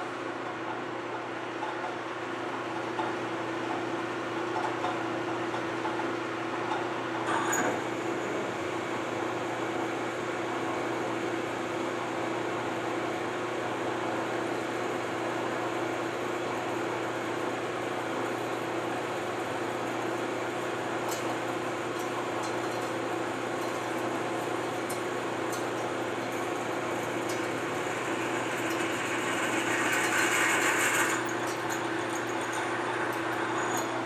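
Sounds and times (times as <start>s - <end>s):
metal lathe humming: 24.1s - 34.0s.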